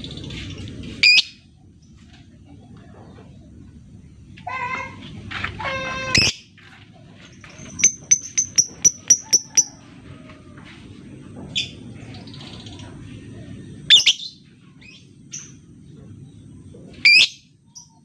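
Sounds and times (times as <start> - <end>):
bird high ticking chirps: 7.4 - 9.7.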